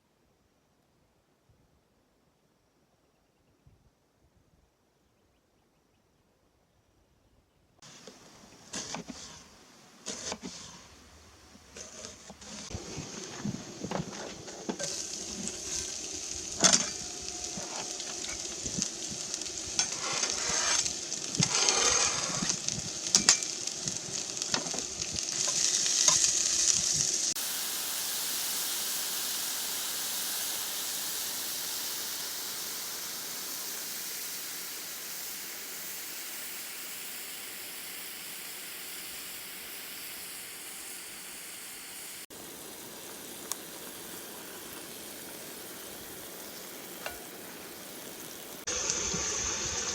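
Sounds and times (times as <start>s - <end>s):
food sizzling in a frying pan: 7.8s - 49.9s.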